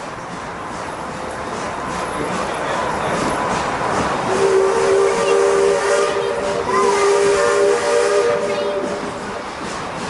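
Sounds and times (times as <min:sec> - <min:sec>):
steam hissing: 0:00.0 - 0:10.0
steam whistle chord: 0:04.3 - 0:09.0.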